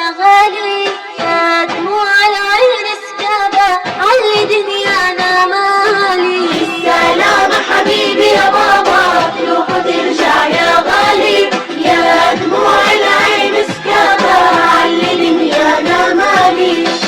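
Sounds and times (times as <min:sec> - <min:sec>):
instrumental backing music: 0:00.0 - 0:17.0
children singing: 0:06.2 - 0:17.0.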